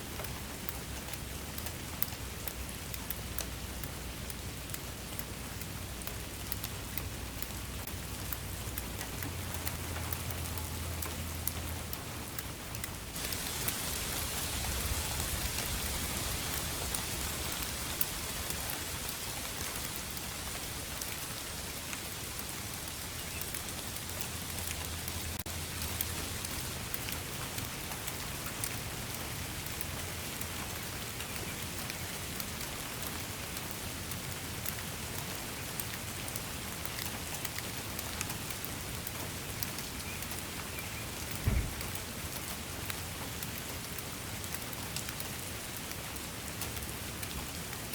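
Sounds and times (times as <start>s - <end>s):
steady rain hiss: 0.0s - 47.9s
drops ticking: 1.6s - 28.9s
low thump: 41.4s - 41.8s.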